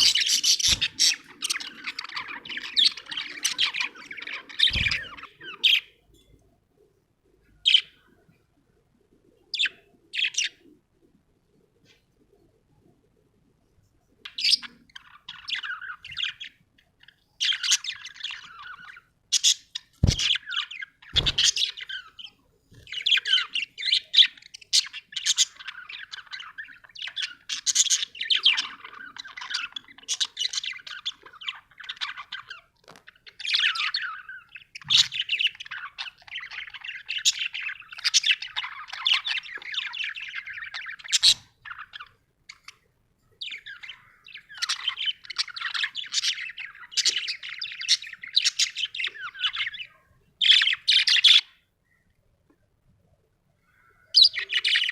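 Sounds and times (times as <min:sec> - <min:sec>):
budgerigar chirping and warbling: 0:00.0 - 0:06.0, 0:14.3 - 0:42.8, 0:43.4 - 0:51.6, 0:54.1 - 0:54.9.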